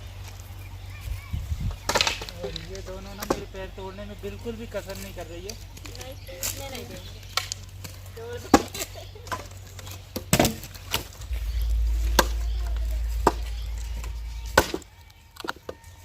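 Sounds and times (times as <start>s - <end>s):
low rumble: 11.1s - 15.5s.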